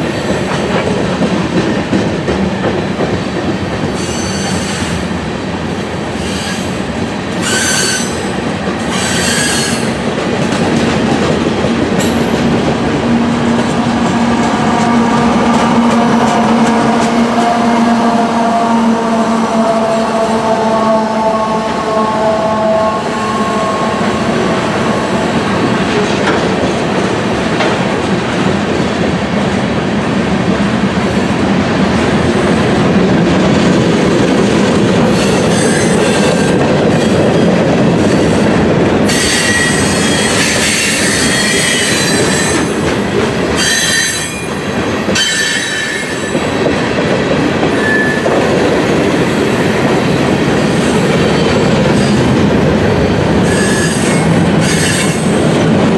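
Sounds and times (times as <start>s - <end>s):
freight train wheels rumbling: 0.0s - 55.9s
shrill steel wheel squeal: 3.9s - 5.0s, 7.4s - 8.3s, 8.9s - 10.0s, 35.1s - 46.5s, 47.7s - 48.7s, 53.4s - 55.5s
steady tones: 10.4s - 26.7s.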